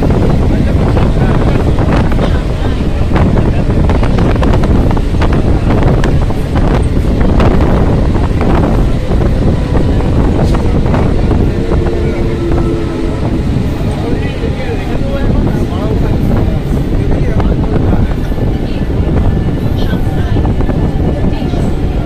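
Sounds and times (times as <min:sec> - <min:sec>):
train coach and wheels rumbling: 0:00.0 - 0:22.0
wind buffeting microphone: 0:00.0 - 0:22.0
steady whine: 0:06.3 - 0:15.9.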